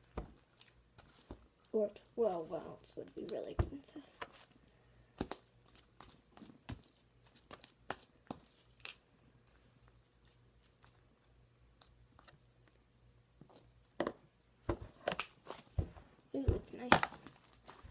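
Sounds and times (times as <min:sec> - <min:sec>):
slime crackling as kneaded: 0:00.0 - 0:04.0, 0:05.1 - 0:09.4.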